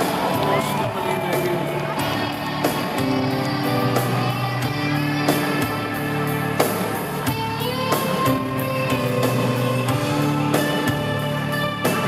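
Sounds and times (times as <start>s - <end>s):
electric guitar chords: 0.0s - 12.0s
rock band playing: 0.0s - 12.0s.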